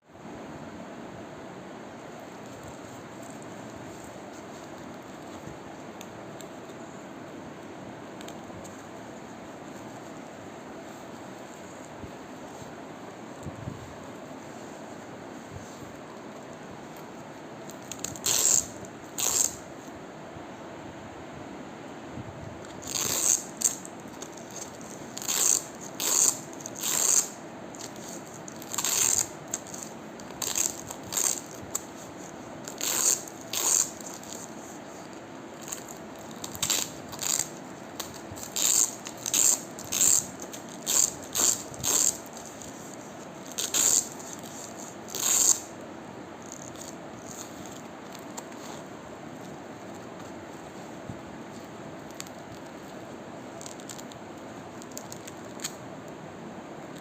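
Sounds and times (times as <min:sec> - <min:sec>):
faint hum: 0:00.0 - 0:57.0
velcro ripping: 0:17.7 - 0:19.6, 0:22.7 - 0:45.7, 0:46.4 - 0:48.9, 0:53.6 - 0:55.8.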